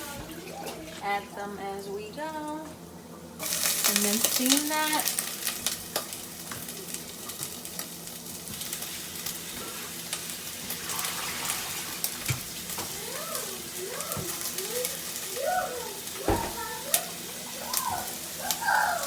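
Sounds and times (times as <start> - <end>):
vegetables sizzling in hot oil: 3.4 - 19.0.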